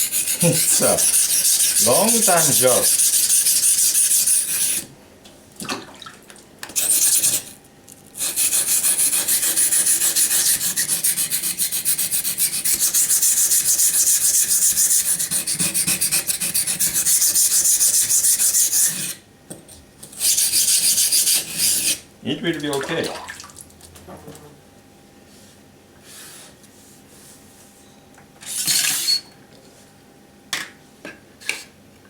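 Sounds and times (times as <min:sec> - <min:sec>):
knife grinding on a wet waterstone: 0:00.0 - 0:04.8.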